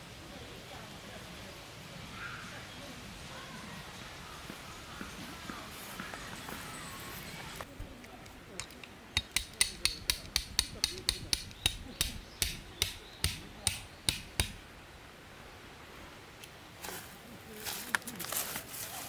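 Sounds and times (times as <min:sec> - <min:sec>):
hammer striking tent stakes: 0:07.8 - 0:14.7
soft rustling: 0:16.8 - 0:19.0.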